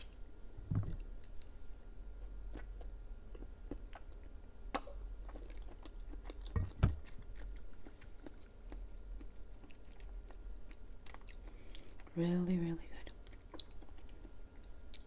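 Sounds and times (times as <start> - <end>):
close chewing with mouth clicks: 0.9 - 12.2, 13.0 - 15.0
sharp snap: 4.7 - 5.0.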